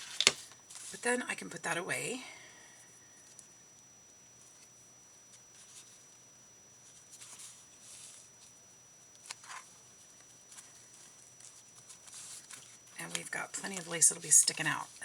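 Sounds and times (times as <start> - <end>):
paper rustling: 0.0 - 1.0, 9.2 - 15.0.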